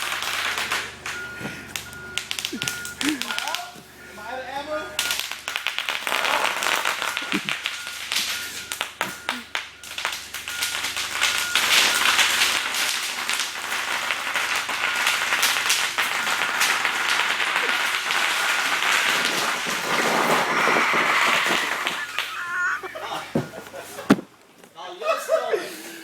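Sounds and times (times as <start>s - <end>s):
bubble wrap popping: 2.2s - 3.7s, 5.1s - 22.7s.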